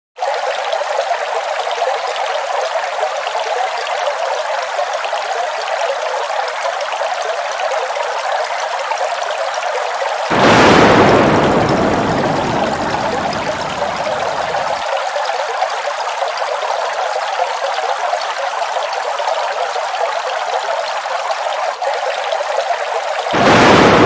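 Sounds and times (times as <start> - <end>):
waterfall rushing and splashing: 10.3 - 15.0, 23.2 - 24.0.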